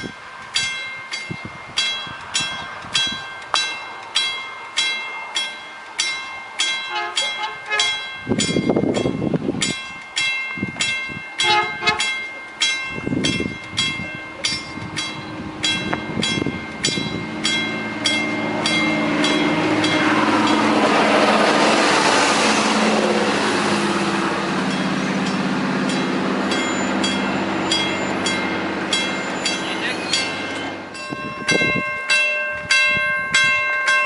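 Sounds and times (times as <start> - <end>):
rail noise: 0.0 - 34.0
train engine drone: 0.0 - 34.0
warning bell ringing rapidly: 0.6 - 22.0, 24.6 - 34.0.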